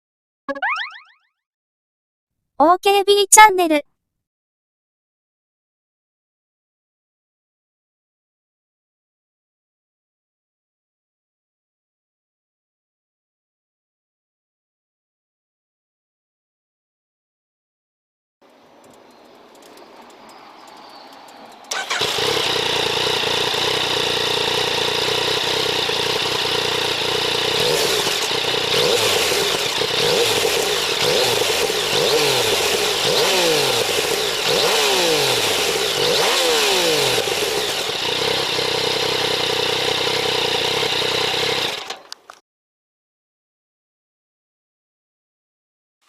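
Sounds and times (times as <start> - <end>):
motorcycle engine idling: 18.8 - 42.2
engine revving in throttle blips: 18.9 - 41.9.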